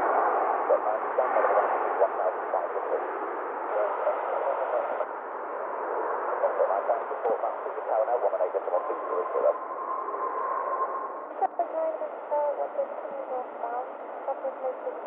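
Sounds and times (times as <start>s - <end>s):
garbled radio transmission: 0.6s - 5.1s, 6.4s - 9.6s, 11.3s - 15.0s
radio static hiss: 0.6s - 5.1s, 6.4s - 9.6s, 11.3s - 15.0s.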